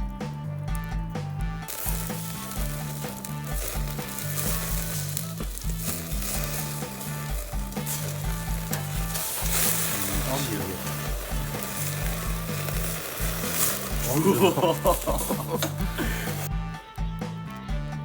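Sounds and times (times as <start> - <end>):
grill sizzling and crackling: 0.0 - 16.5
music with repeating bass line: 0.0 - 18.0.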